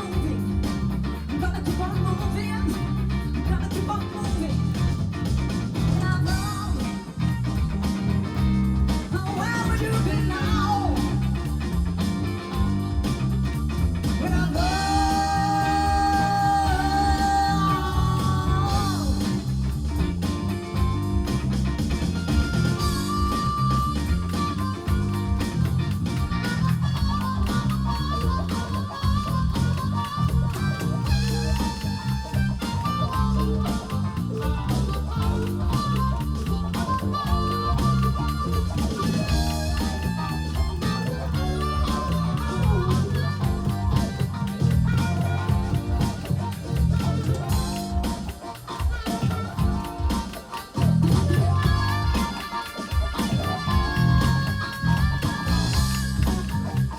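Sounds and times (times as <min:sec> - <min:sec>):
person singing: 0:00.0 - 0:05.0, 0:05.7 - 0:07.6, 0:09.0 - 0:11.8, 0:14.0 - 0:20.2
live rock band playing: 0:00.0 - 0:56.9.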